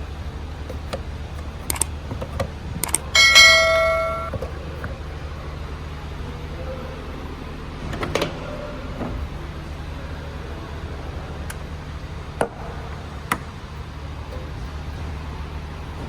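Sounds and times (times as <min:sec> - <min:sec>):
quiet knocks: 0:00.0 - 0:16.0
steady low hum: 0:00.0 - 0:16.0
metallic clang: 0:00.8 - 0:06.3.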